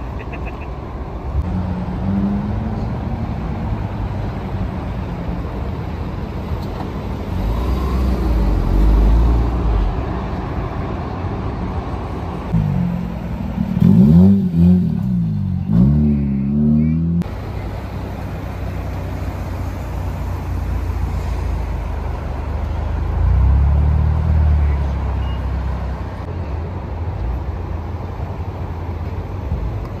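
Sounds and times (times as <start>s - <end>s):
car engine revving: 12.5s - 17.3s
car passing by: 18.7s - 26.2s.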